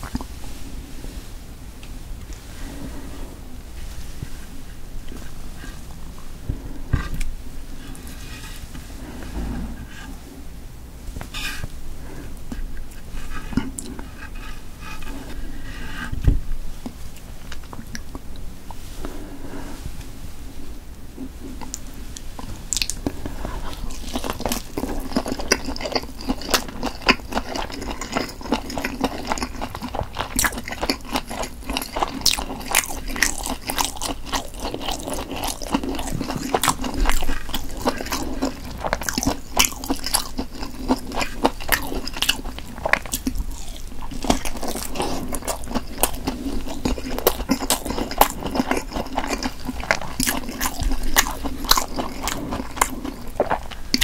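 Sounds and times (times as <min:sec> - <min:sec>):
crisp crunching while chewing: 0:21.6 - 0:54.0.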